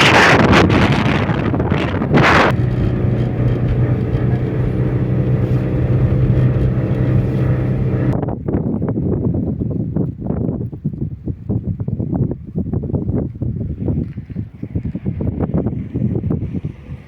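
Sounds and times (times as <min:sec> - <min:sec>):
wind gust on microphone: 0:00.0 - 0:17.0
vehicle engine running: 0:00.5 - 0:08.2.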